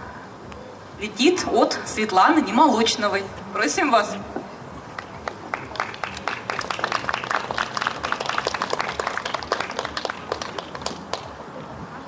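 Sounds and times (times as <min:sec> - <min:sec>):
audience applauding: 0:05.0 - 0:11.3.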